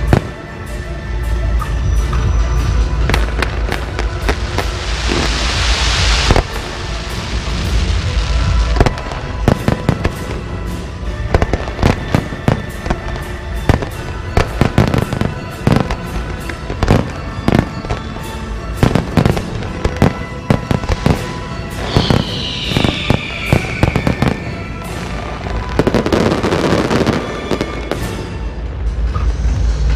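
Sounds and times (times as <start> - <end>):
falling firework whistle: 1.7 - 10.3, 16.8 - 28.4
firecracker bangs: 3.1 - 28.4
rushing hiss: 4.3 - 8.8, 20.7 - 26.6.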